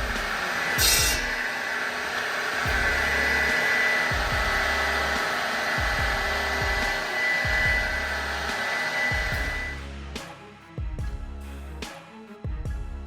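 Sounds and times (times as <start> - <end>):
background music with bass beat: 0.0 - 1.5, 2.6 - 13.0
machine motor whirring with whine: 0.0 - 9.8.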